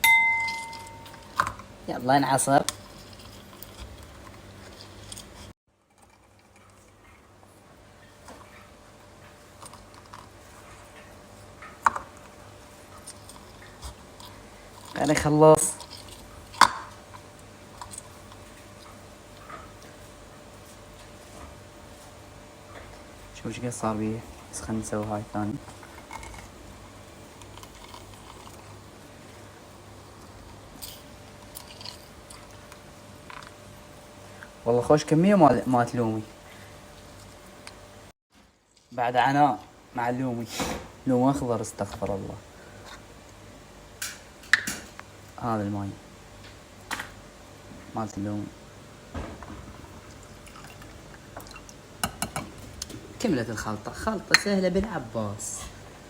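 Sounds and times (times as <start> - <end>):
handling noise: 0.0 - 1.7.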